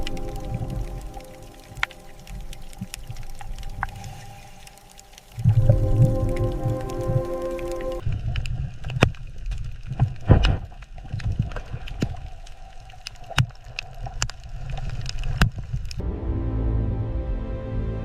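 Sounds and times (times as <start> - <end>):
music: 0.0 - 2.1, 5.6 - 8.0, 16.0 - 18.0
sharp clicks and crackles: 0.0 - 16.0
low rumble of moving water: 0.0 - 18.0.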